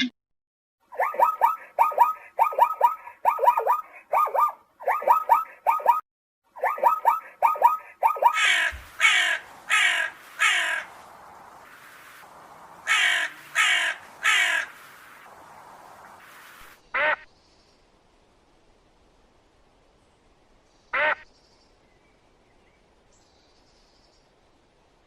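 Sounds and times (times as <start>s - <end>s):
crow cawing: 8.3s - 11.0s, 12.8s - 14.8s.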